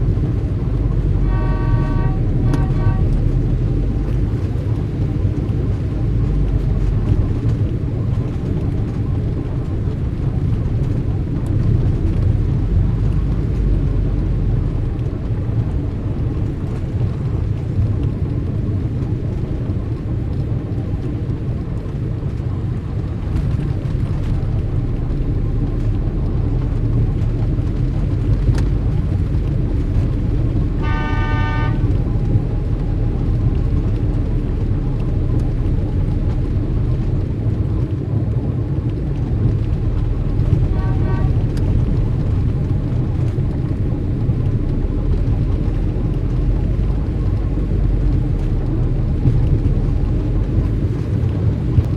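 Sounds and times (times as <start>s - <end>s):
street traffic rumble: 0.0s - 51.9s
car horn honk: 1.2s - 3.2s, 30.8s - 31.9s, 40.7s - 41.4s.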